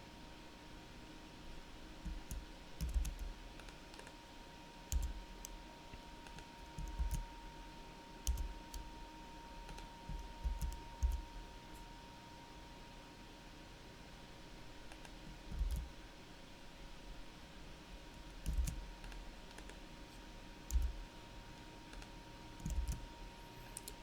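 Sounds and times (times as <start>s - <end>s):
keyboard and mouse clicking: 2.1s - 4.1s, 4.9s - 5.6s, 6.2s - 7.2s, 8.2s - 8.8s, 9.7s - 11.2s, 14.9s - 15.9s, 18.2s - 19.8s, 20.7s - 21.0s, 21.9s - 23.1s, 23.8s - 24.0s.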